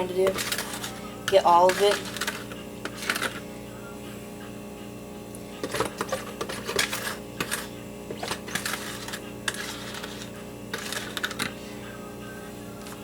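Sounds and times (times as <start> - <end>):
utensil scraping mixing bowl: 0.0 - 3.5, 5.6 - 11.8
steady low hum: 0.0 - 13.0.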